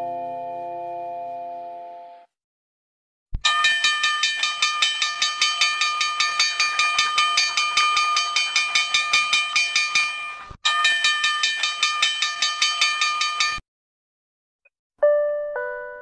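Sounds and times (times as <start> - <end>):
electric bell ringing: 3.4 - 13.6.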